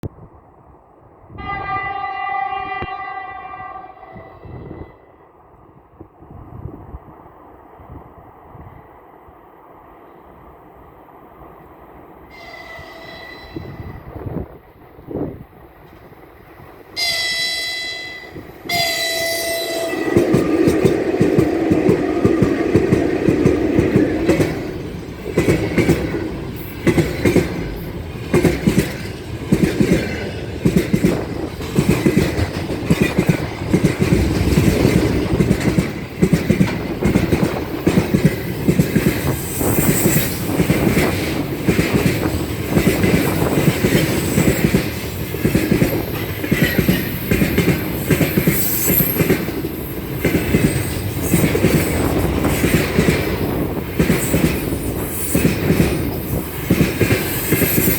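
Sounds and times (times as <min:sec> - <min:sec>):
train wheels clattering: 0:18.6 - 0:57.9
faint high wheel squeal: 0:48.4 - 0:49.4.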